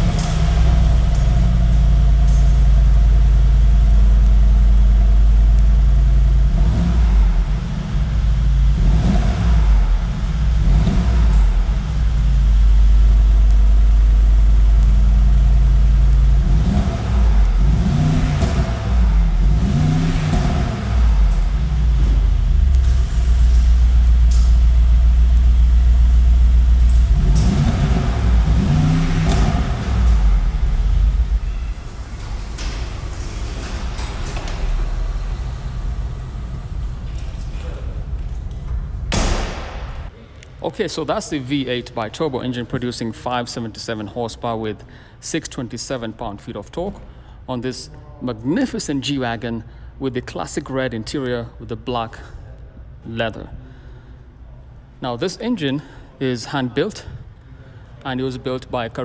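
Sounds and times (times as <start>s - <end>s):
car engine idling and revving: 0.0s - 44.8s.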